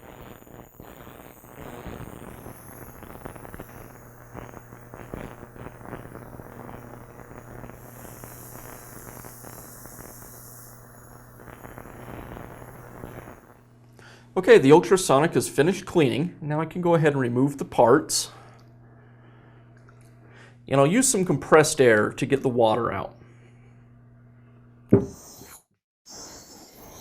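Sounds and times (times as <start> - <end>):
crackling hiss: 0.0 - 15.2
ultrasonic cleaner humming: 0.0 - 25.1.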